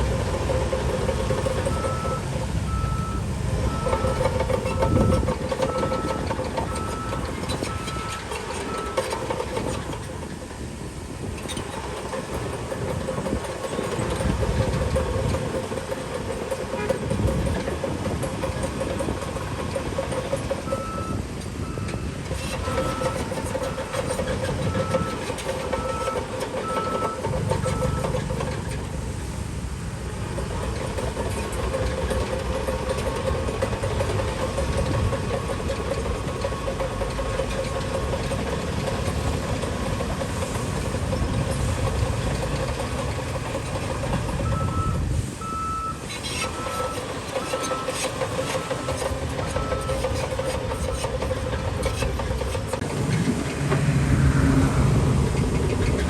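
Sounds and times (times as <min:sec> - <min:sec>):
heavy diesel machinery running: 0:00.0 - 0:56.0
reversing alarm beeping: 0:01.3 - 0:09.8, 0:20.4 - 0:28.4, 0:44.4 - 0:50.2.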